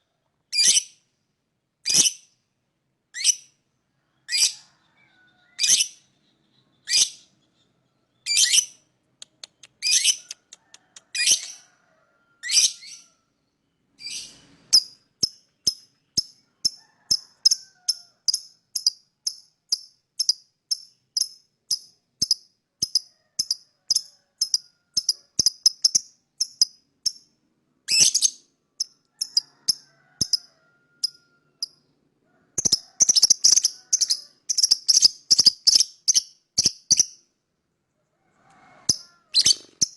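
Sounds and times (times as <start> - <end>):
lovebird chirping: 4.2 - 10.4, 12.4 - 31.8, 32.6 - 37.3, 38.9 - 39.9.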